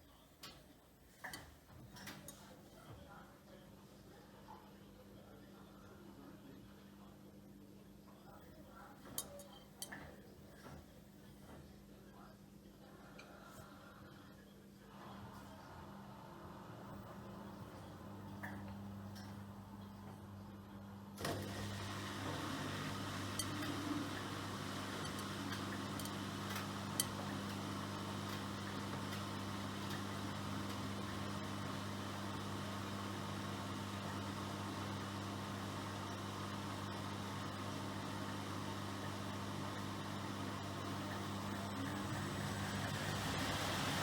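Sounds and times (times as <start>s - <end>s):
washing machine running: 15.0s - 44.0s.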